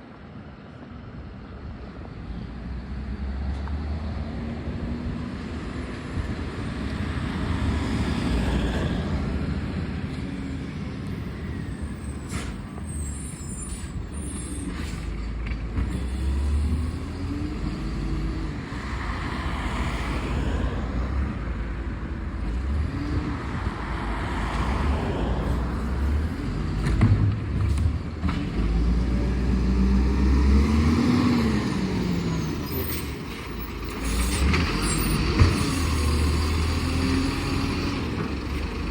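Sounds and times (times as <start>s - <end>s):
diesel truck engine revving: 25.6s - 38.9s.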